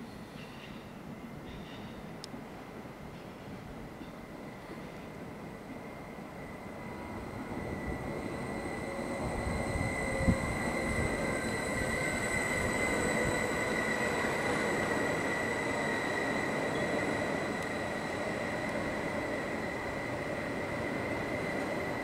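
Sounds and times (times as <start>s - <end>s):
electric train rumbling: 0.0s - 22.0s
high-pitched squeal: 5.9s - 22.0s.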